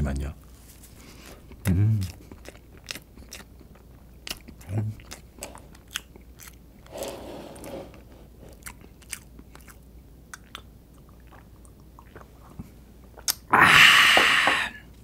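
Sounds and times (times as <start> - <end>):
person chewing cake: 1.0 - 7.0, 8.3 - 13.5
wet mouth clicks: 8.6 - 12.3, 13.2 - 13.5.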